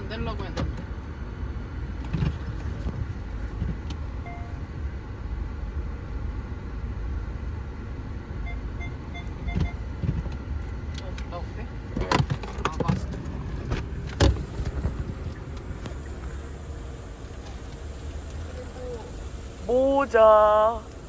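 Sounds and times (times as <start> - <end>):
car road and engine rumble: 0.0 - 21.0
brief electronic tone: 4.2 - 4.6, 8.4 - 9.8
short beeps: 4.2 - 4.6, 8.4 - 9.9.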